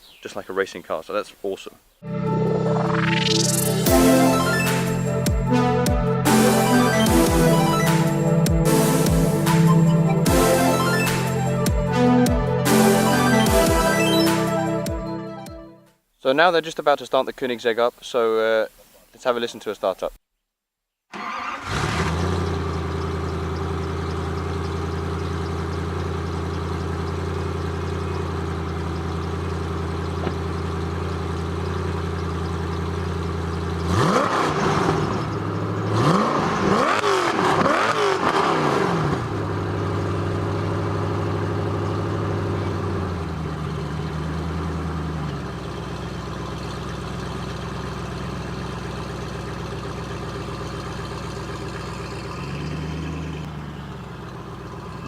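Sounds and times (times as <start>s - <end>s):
car engine starting and idling: 2.0s - 15.4s, 21.1s - 55.0s
engine revving: 21.2s - 53.8s.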